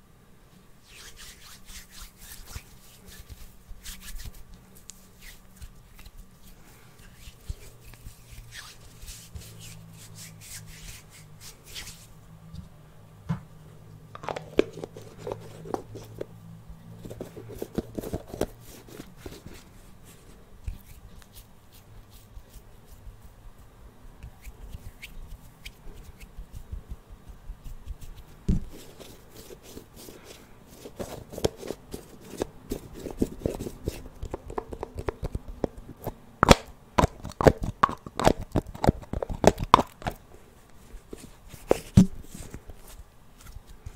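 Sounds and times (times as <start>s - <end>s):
fingers tapping and scratching: 31.0s - 40.2s.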